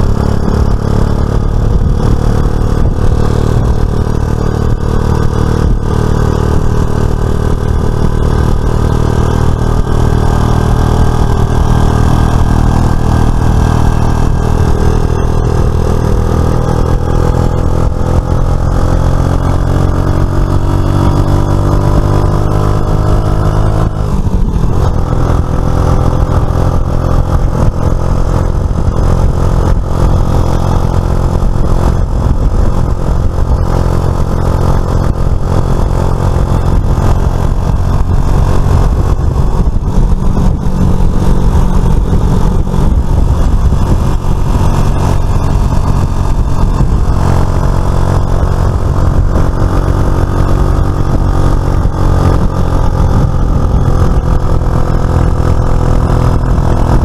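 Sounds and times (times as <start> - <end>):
scooter engine running: 0.0 - 57.0.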